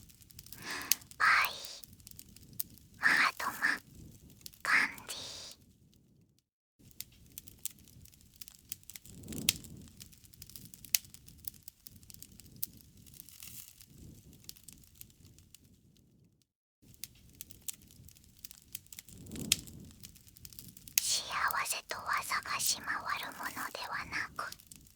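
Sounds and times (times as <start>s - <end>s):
campfire crackling: 0.0s - 5.6s, 7.0s - 15.1s, 16.9s - 24.9s.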